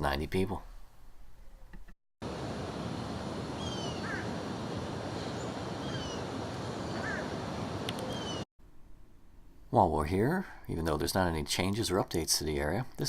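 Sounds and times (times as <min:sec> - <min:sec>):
bird calling: 0:03.4 - 0:08.4
faint clicks: 0:07.8 - 0:08.1.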